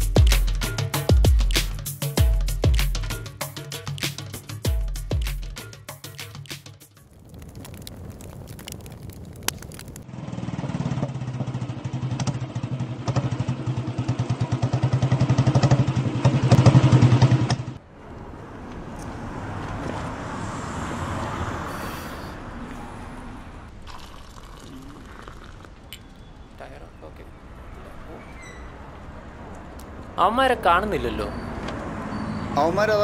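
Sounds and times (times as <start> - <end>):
motorcycle engine approaching: 9.7 - 17.8.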